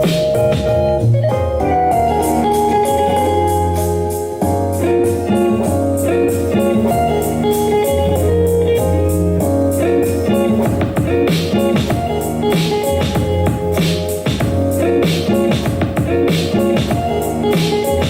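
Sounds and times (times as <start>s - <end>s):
music with guitar and bass: 0.0s - 18.0s.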